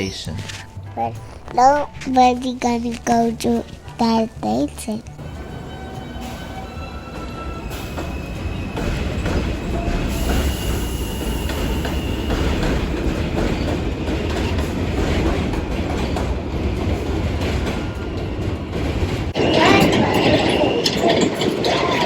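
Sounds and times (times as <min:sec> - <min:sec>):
train wheels rumbling on rails: 0:02.2 - 0:22.0
high wheel squeal: 0:05.2 - 0:13.8.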